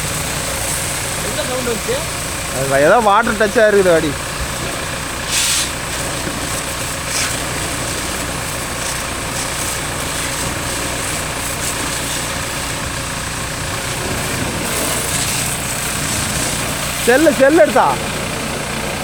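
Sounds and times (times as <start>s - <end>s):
engine idling: 0.0s - 19.0s
short bursts of hiss: 5.2s - 5.9s.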